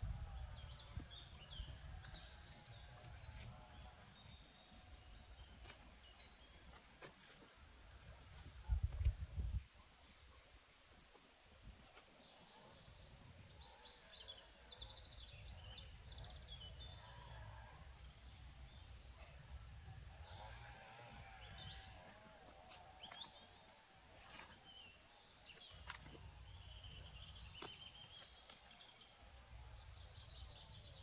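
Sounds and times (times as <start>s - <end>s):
low rumble of wind: 0.0s - 6.5s, 7.8s - 10.2s
small birds chirping: 0.4s - 31.0s.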